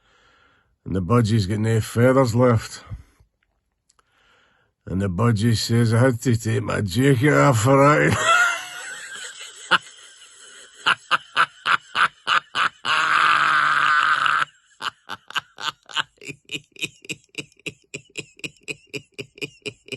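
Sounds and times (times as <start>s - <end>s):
person laughing: 8.0s - 19.9s.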